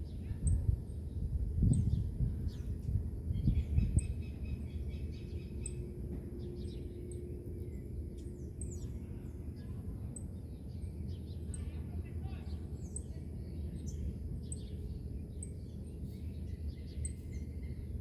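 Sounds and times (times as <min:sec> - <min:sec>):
wind gusting on microphone: 0:00.0 - 0:04.3
wind rumble: 0:00.0 - 0:04.3
distant road traffic: 0:04.6 - 0:18.0
small birds chirping: 0:06.5 - 0:18.0.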